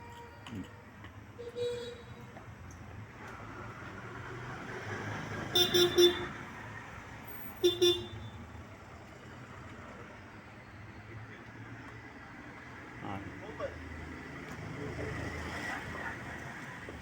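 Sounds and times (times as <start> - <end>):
traffic hum: 0.0 - 17.0
vehicle horn tooting: 1.4 - 2.2, 5.5 - 6.4, 7.6 - 8.4.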